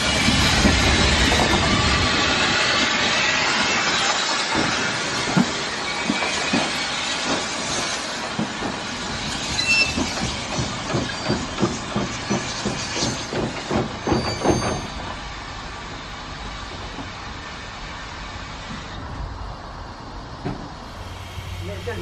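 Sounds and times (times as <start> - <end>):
train wheels knocking over rail joints: 4.5 - 15.2, 20.4 - 20.8.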